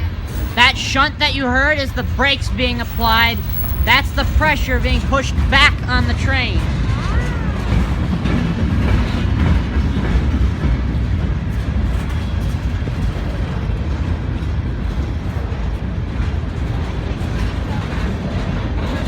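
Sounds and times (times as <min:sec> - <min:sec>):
train air brakes: 0:00.0 - 0:00.9
freight train rumbling: 0:00.0 - 0:19.0
train wheel clatter: 0:00.0 - 0:19.0.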